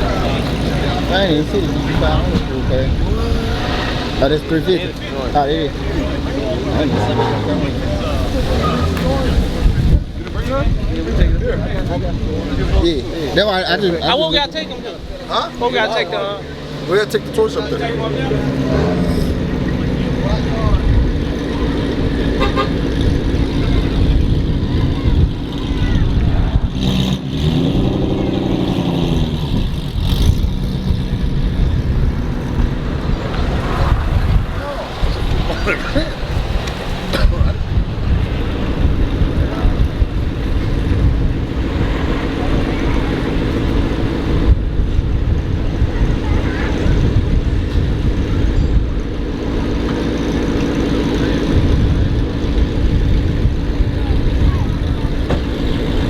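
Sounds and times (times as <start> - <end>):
car engine idling: 0.0 - 26.2.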